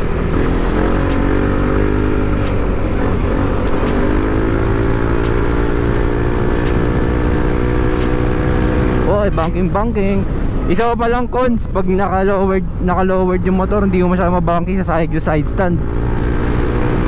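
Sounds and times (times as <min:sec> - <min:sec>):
scooter engine running: 0:00.0 - 0:09.1
wind and road noise: 0:00.0 - 0:17.0.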